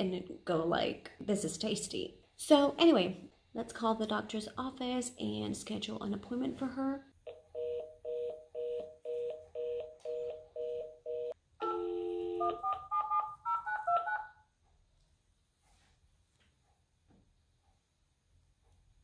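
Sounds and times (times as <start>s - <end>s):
dial tone: 7.6s - 13.3s
busy signal beeping: 11.6s - 12.6s.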